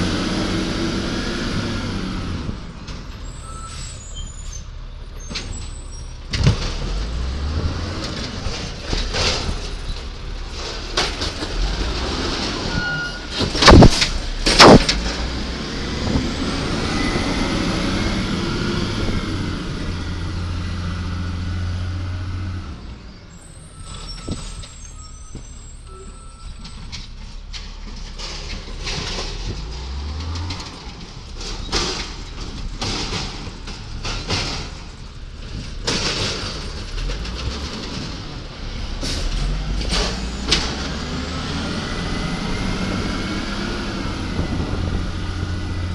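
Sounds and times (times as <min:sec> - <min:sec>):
garbage truck engine: 0:00.0 - 0:45.9
knocks and clatter: 0:05.2 - 0:15.4, 0:26.6 - 0:41.0
loud sharp bangs: 0:13.3 - 0:15.3.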